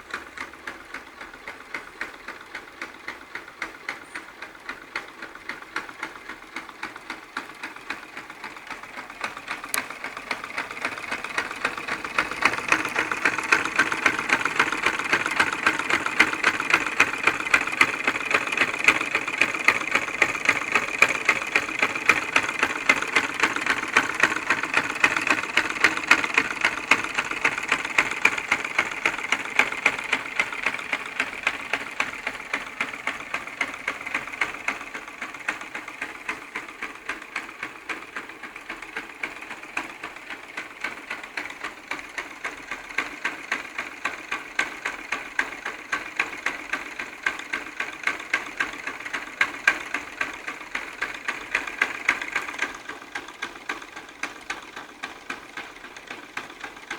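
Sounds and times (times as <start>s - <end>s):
piston engine clacking: 0.0s - 56.9s.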